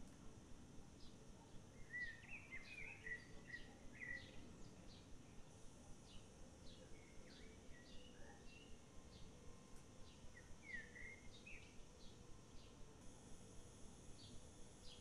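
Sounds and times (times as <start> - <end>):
low steady hiss: 0.0 - 15.0
faint bird chirps and whistles: 1.0 - 5.1, 6.0 - 9.3, 10.0 - 12.8.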